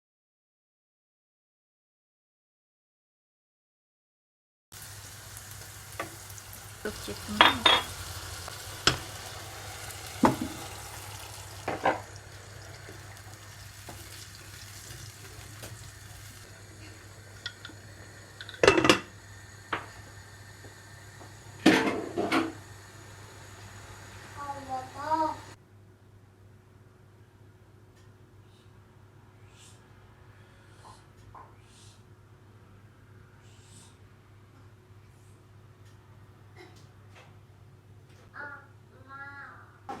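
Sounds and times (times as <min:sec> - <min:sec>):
kitchen utensils knocking and clinking: 0:07.0 - 0:08.0, 0:11.6 - 0:12.1, 0:18.4 - 0:19.1.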